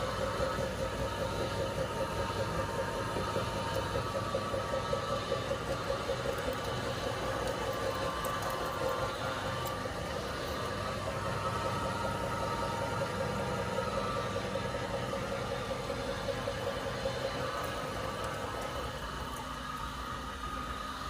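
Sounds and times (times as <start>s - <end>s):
meat grinder humming: 0.0s - 21.0s.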